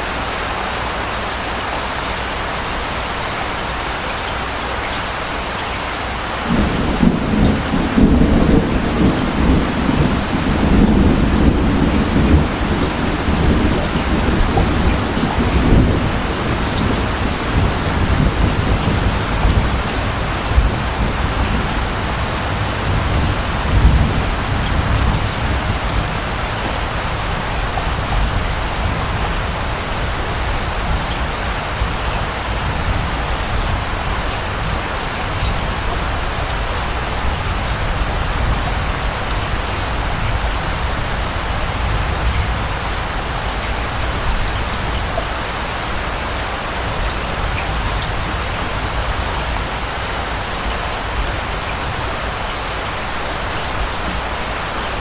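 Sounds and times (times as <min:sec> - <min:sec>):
steady rain falling: 0:00.0 - 0:55.0
distant thunder rumble: 0:06.4 - 0:46.1.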